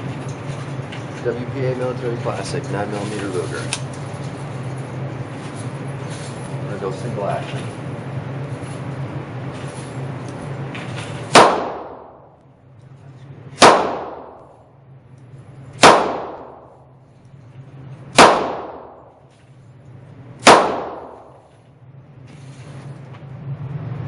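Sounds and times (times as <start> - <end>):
revolver gunshots indoors: 11.3 - 12.4, 13.6 - 14.7, 15.8 - 16.9, 18.1 - 19.2, 20.4 - 21.5.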